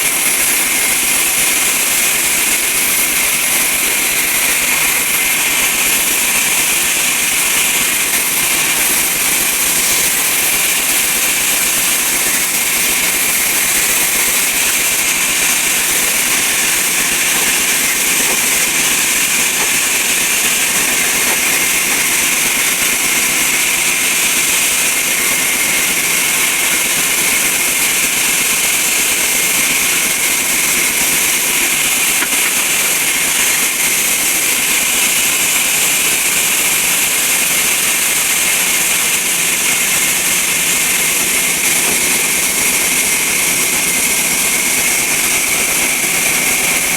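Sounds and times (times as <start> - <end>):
sawmill saw running: 0.0 - 46.9.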